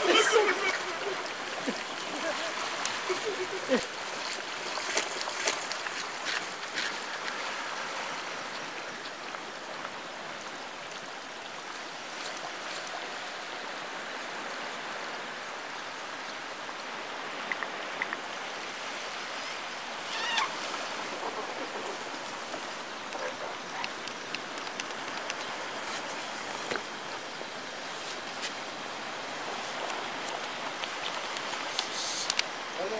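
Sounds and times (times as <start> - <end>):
steady background hiss: 0.0 - 32.9
faint clicks: 23.0 - 26.9, 29.8 - 32.5.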